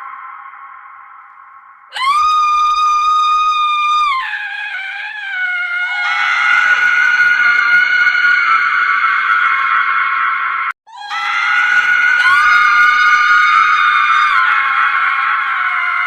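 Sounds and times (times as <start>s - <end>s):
woman screaming: 1.9s - 8.7s, 10.9s - 16.0s.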